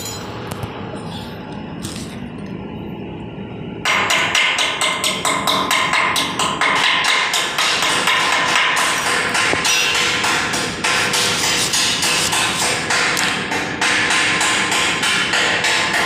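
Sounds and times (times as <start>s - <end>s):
hammer striking metal: 0.0s - 0.4s, 3.8s - 16.0s
low steady hum: 0.0s - 6.6s.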